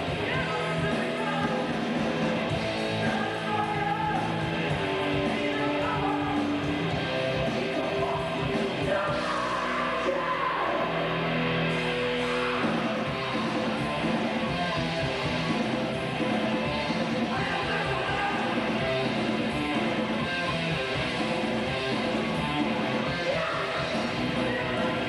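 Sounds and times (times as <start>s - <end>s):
electric guitar: 0.0s - 25.0s
metal band playing: 0.0s - 25.0s
sung and shouted vocals: 7.3s - 11.3s, 23.1s - 25.0s.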